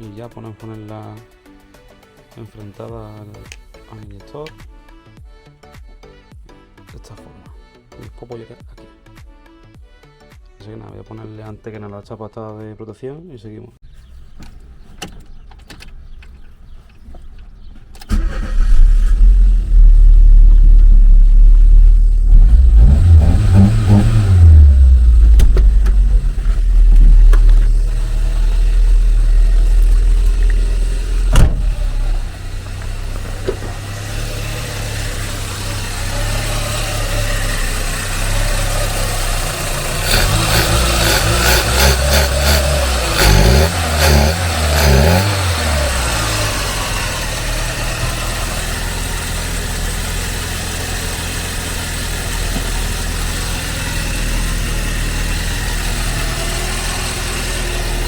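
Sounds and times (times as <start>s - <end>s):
car engine revving and idling: 18.1s - 58.0s.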